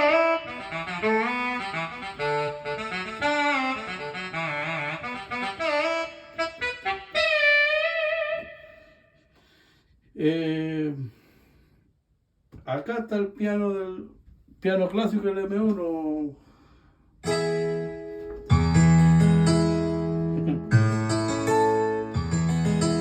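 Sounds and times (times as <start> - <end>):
keyboard saxophone melody: 0.0 - 9.2, 17.2 - 23.0.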